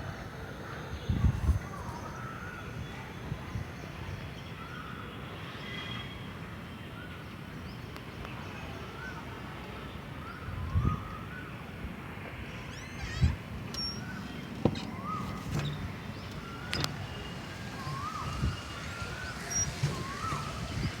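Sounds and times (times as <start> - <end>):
bird calls: 12.5 - 21.0.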